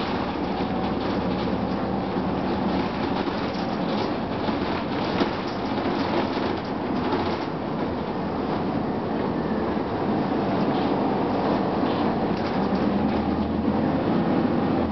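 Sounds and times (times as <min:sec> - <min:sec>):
body rattling and clicking: 0:00.0 - 0:08.7, 0:10.6 - 0:13.6
bus engine and blower noise: 0:00.0 - 0:14.9.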